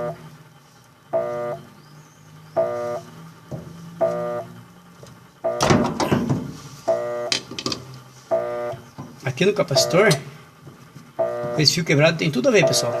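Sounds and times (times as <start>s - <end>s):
electronic buzzer beeping: 0.0s - 0.2s, 1.1s - 1.7s, 2.6s - 3.1s, 4.0s - 4.6s, 5.4s - 5.8s, 6.8s - 7.4s, 8.3s - 8.9s, 9.7s - 10.2s, 11.2s - 11.7s, 12.5s - 13.0s
clattering handling noise: 5.0s - 8.0s.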